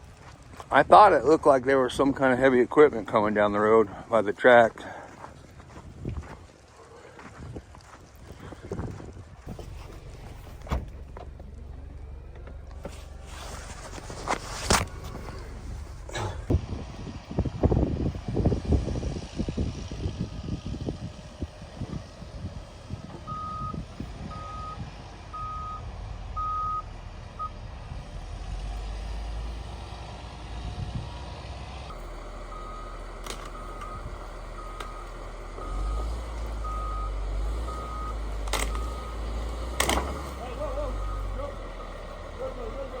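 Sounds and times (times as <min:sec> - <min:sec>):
low engine rumble: 0:00.0 - 0:43.0
low thumps and knocks: 0:08.8 - 0:16.6
vehicle backup alarm beeping: 0:23.1 - 0:27.6, 0:31.9 - 0:43.0.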